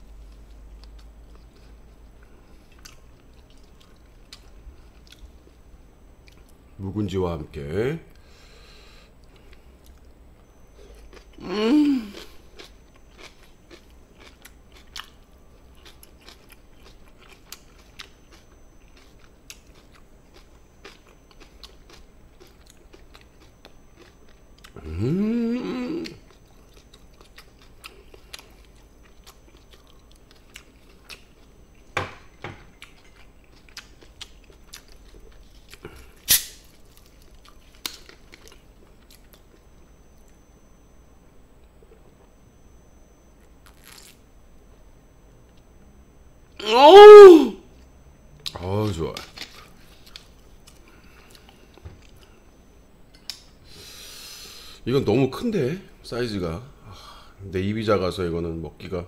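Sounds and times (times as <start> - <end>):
person chewing: 0.2 - 5.5, 6.2 - 6.6, 10.8 - 31.9, 32.7 - 40.4, 43.6 - 44.2, 49.2 - 52.4
person humming: 11.4 - 12.2, 24.8 - 26.2, 46.6 - 47.6.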